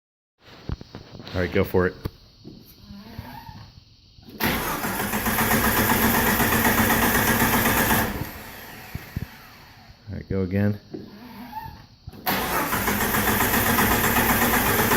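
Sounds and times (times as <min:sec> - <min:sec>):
engine cranking by starter: 0:04.3 - 0:09.9, 0:11.1 - 0:14.9.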